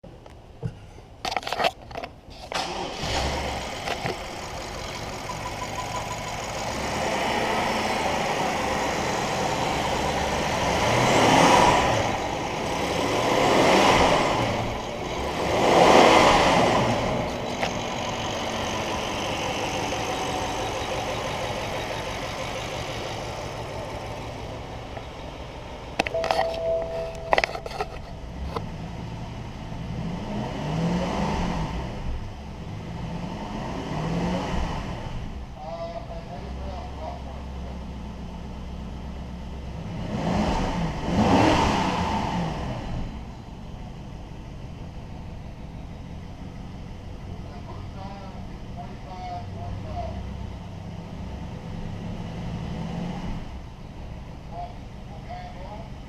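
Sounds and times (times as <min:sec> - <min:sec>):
car engine starting and idling: 0:00.1 - 0:56.0
car engine revving: 0:02.6 - 0:26.2, 0:27.3 - 0:35.4, 0:39.5 - 0:43.3
clicks: 0:26.0 - 0:28.7.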